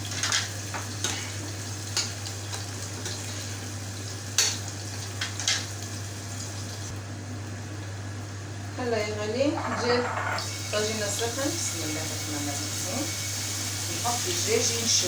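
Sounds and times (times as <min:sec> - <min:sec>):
onion sizzling in oil: 0:00.0 - 0:08.4, 0:10.4 - 0:15.0
spoon scraping a pot: 0:09.6 - 0:10.5.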